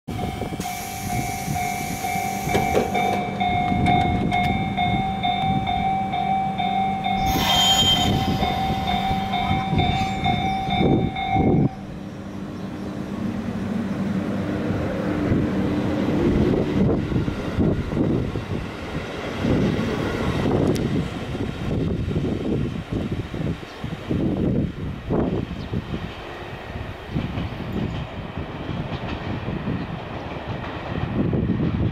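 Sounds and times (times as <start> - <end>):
pulsing departure signal tone: 0.1 - 12.0
train low hum: 0.1 - 31.9
air hiss: 0.6 - 3.1, 7.2 - 9.3
train motors whining: 0.6 - 5.1.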